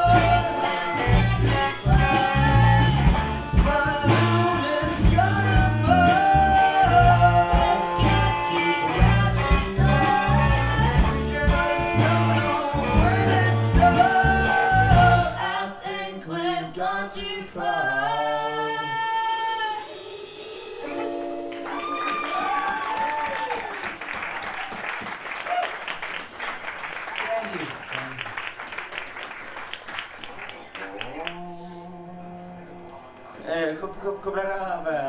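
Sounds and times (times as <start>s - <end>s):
drums and bass beat: 0.0s - 15.4s
rock band playing: 0.0s - 15.4s, 19.6s - 23.0s
person singing: 0.0s - 20.0s, 30.9s - 33.2s.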